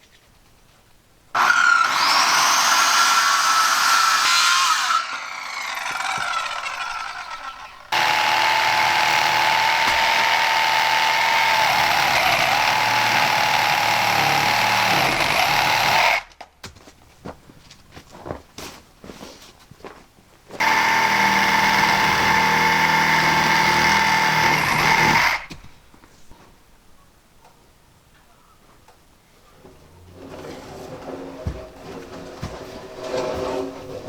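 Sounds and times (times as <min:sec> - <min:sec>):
electric power saw whining: 0:01.4 - 0:16.2, 0:20.6 - 0:25.5.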